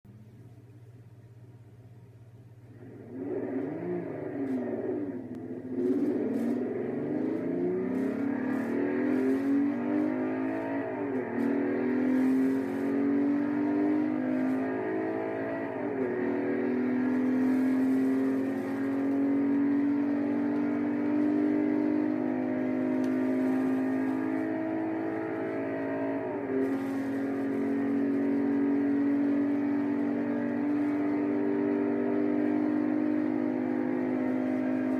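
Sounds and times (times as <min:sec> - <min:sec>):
car engine accelerating through gears: 0:02.7 - 0:34.9.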